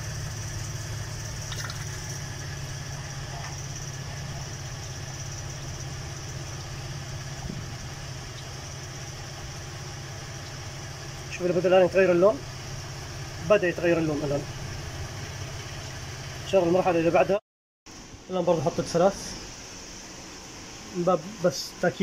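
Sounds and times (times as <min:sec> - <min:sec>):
car engine idling: 0:00.0 - 0:17.2.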